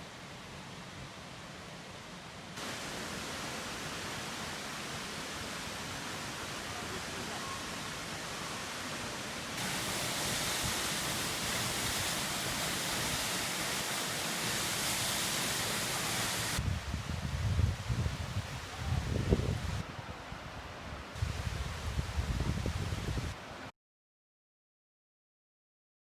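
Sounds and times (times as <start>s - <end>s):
waterfall rushing: 2.6s - 16.6s
wind gusts on microphone: 16.2s - 23.4s.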